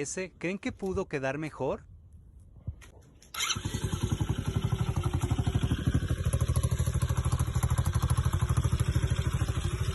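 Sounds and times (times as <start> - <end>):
motorcycle engine idling: 3.4 - 9.9.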